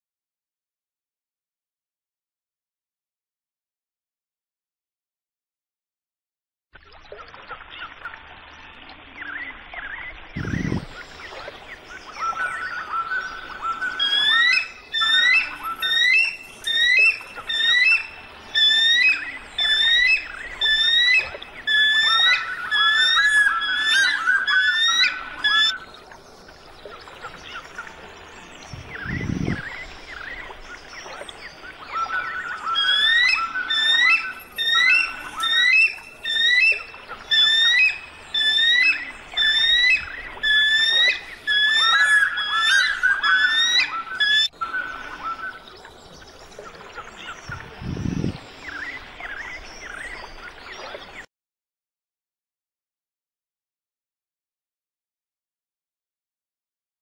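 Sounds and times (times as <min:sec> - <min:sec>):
birds chirping: 0:09.2 - 0:51.3.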